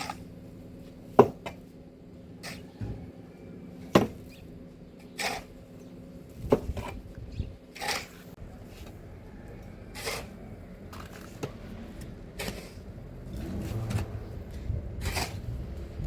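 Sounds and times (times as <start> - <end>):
sharp scrapes: 5.0 - 5.6, 7.7 - 9.0, 9.8 - 15.6.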